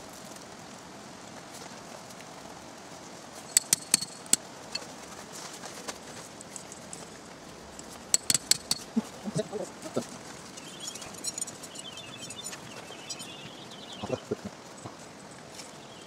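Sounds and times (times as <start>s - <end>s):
sharp clicks and clinks: 3.5s - 4.8s, 7.8s - 8.9s, 10.6s - 13.5s
bird chattering: 9.9s - 14.4s.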